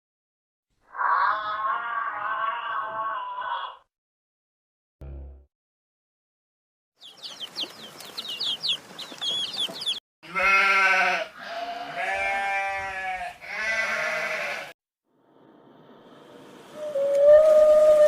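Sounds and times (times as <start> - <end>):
livestock bleating: 1.0 - 3.8, 10.2 - 14.8.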